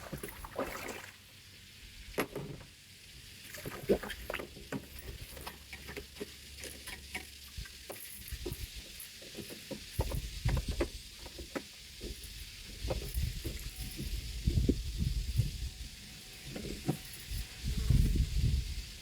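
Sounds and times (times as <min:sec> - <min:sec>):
rigging clicks and rustles: 0:03.4 - 0:15.7, 0:16.3 - 0:18.6
low thumps and rumbles: 0:12.8 - 0:15.8.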